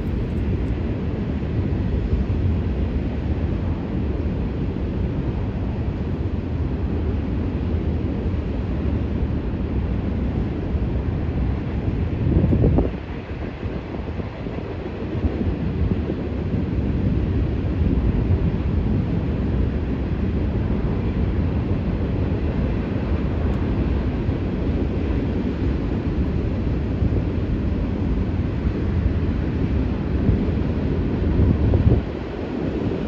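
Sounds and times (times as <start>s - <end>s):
wind buffeting microphone: 0.0s - 2.7s, 10.7s - 33.0s.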